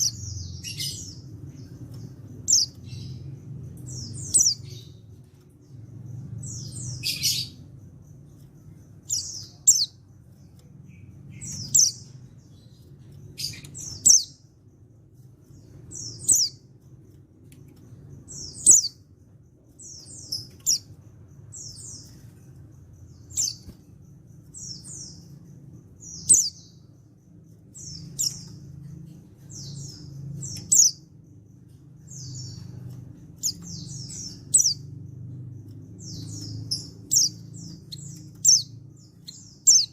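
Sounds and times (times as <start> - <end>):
faint low hum: 0.0 - 39.9
bird high sharp chirps: 32.0 - 34.9.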